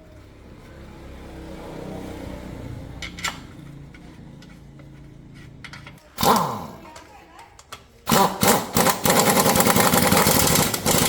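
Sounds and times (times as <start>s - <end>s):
small motorbike engine running: 6.2s - 6.8s, 8.1s - 11.0s.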